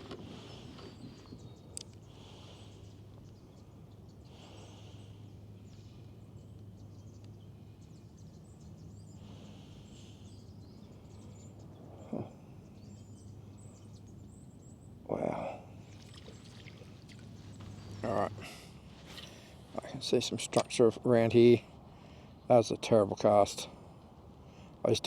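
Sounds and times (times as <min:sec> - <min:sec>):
steady low hum: 0:00.0 - 0:25.0
faint high chirps and ticks: 0:05.6 - 0:09.2.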